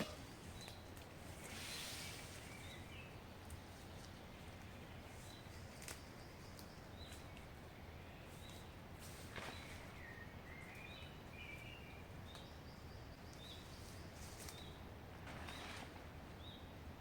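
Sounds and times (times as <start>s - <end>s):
outdoor hiss: 0.0s - 3.7s.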